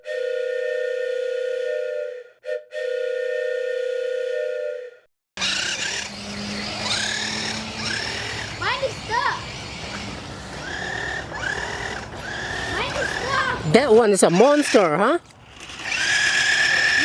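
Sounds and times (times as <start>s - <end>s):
rising and falling whines: 5.4s - 17.0s.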